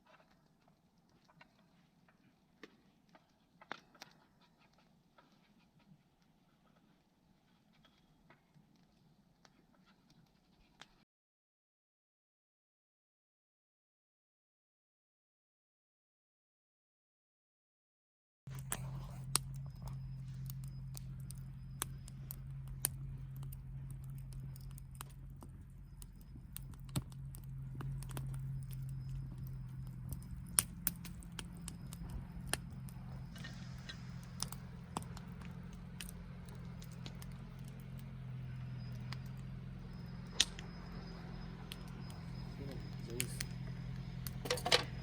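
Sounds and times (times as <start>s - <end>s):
campfire crackling: 18.5s - 45.0s.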